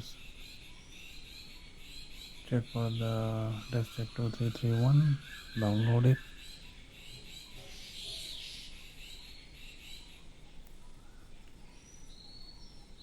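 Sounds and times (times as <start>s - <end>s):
birds chirping: 0.0s - 10.2s
low background hiss: 0.0s - 13.0s.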